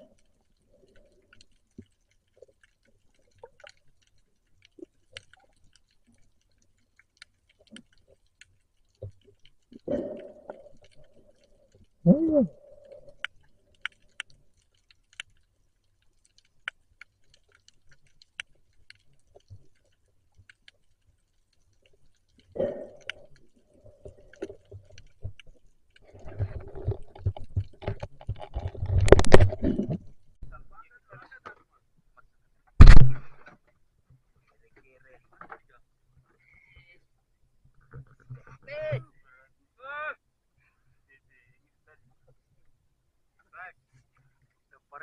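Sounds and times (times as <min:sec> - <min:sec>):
faint underwater clicks and crackles: 0:00.0 - 0:45.0.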